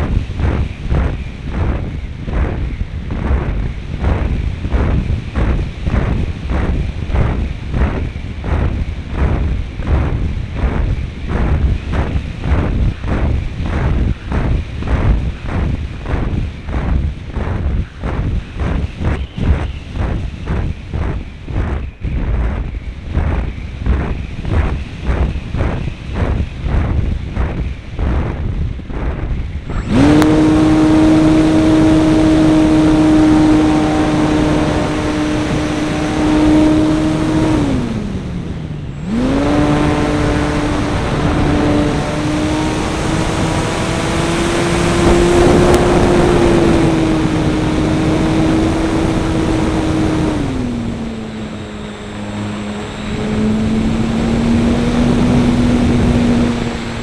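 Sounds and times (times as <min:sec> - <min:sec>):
wind rushing over microphone: 0:00.0 - 0:57.0
model airplane motor droning: 0:29.0 - 0:57.0.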